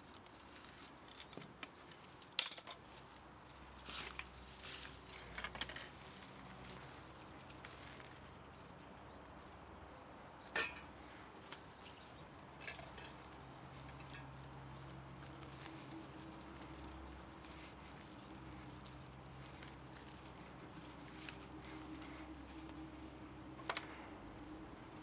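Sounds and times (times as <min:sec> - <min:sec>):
metal tools clicking and tapping: 0:10.5 - 0:14.9.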